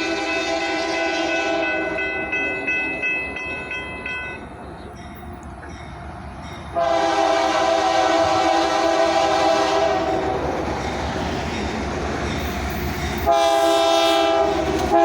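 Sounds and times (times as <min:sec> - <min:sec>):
locomotive air horn: 0:00.0 - 0:02.0, 0:06.8 - 0:10.4, 0:13.3 - 0:15.0
rumble of passing train: 0:00.0 - 0:15.0
bell dinging: 0:01.6 - 0:06.7.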